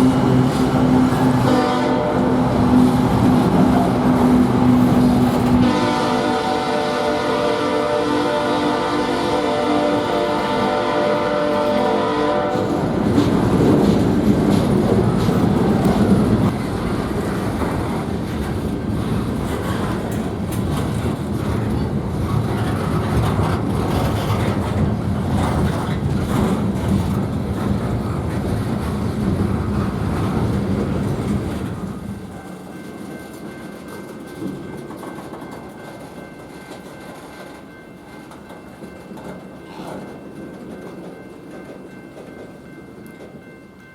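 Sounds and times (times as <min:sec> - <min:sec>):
locomotive air horn chord: 0:00.0 - 0:03.1, 0:03.9 - 0:12.9
train engine running: 0:00.0 - 0:43.6
wheels clacking over rail joints: 0:09.5 - 0:43.6.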